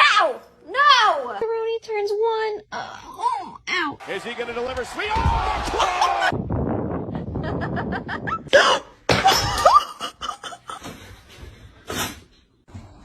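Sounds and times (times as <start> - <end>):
person laughing: 7.2 - 8.8.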